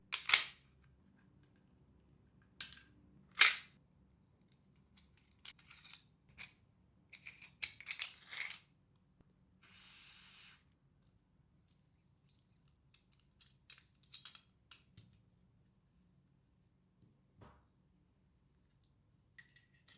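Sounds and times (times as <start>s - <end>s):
short gas hiss: 9.6s - 10.7s
metal parts clicking and rattling: 12.9s - 15.1s.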